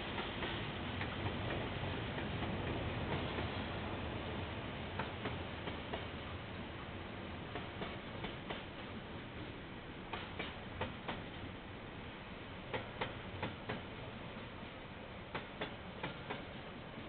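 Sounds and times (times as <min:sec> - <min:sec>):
train wheels clicking over rail joints: 0:00.0 - 0:03.6, 0:04.9 - 0:06.2, 0:07.5 - 0:11.6, 0:12.6 - 0:14.6, 0:15.2 - 0:17.0
train rumble: 0:00.0 - 0:17.0.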